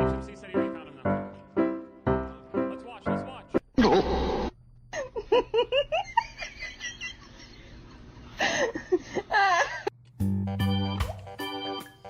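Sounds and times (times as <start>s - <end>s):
person laughing: 4.9s - 9.9s.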